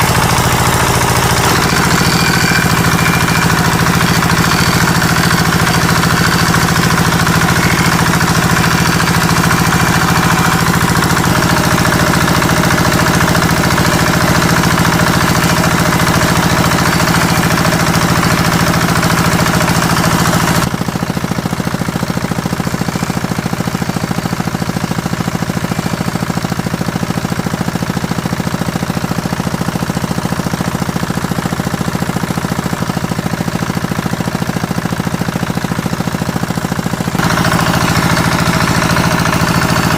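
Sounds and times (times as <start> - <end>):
machine motor humming: 0.0 - 20.7, 36.9 - 39.9.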